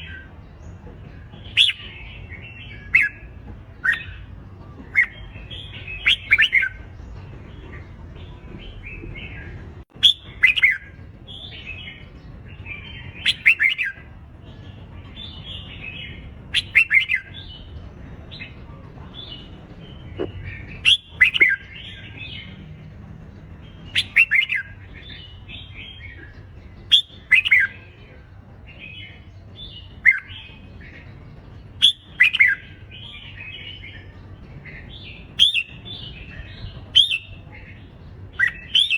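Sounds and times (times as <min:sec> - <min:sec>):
bird singing warbled phrases: 0:00.0 - 0:38.9
chatter of soft chirps: 0:00.0 - 0:38.9.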